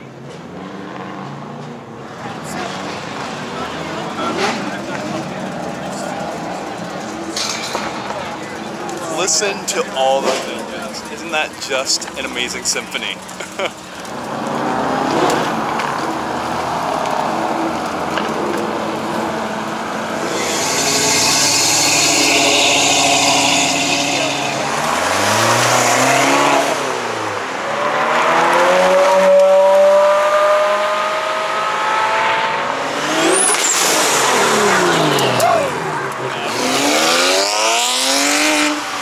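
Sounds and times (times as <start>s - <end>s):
sports car engines revving: 0.0s - 39.0s.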